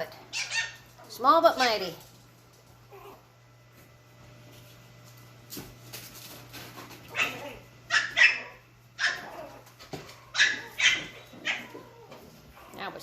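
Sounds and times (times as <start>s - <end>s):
small dogs yapping: 0.3s - 1.7s, 2.9s - 3.3s, 7.0s - 12.9s.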